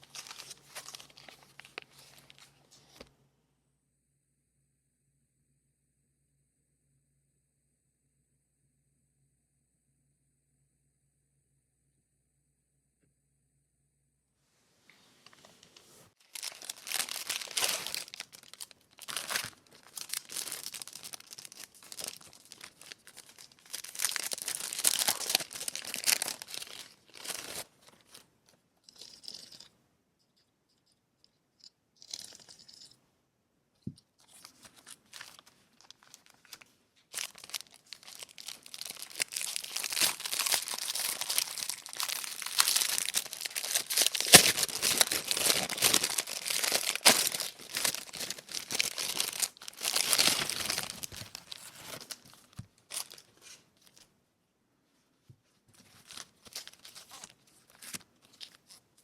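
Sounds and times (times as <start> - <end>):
packaging tearing and crinkling: 0.0 - 2.5, 16.3 - 28.2, 34.3 - 54.0, 55.8 - 58.8.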